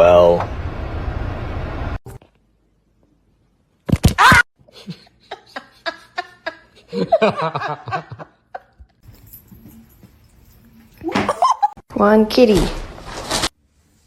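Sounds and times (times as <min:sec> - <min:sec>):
person laughing: 0:04.1 - 0:08.9.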